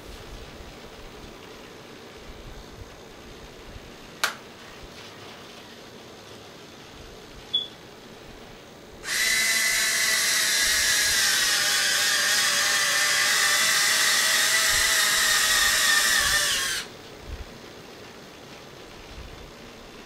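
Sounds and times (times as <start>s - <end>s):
small electric motors whining: 9.0s - 16.9s.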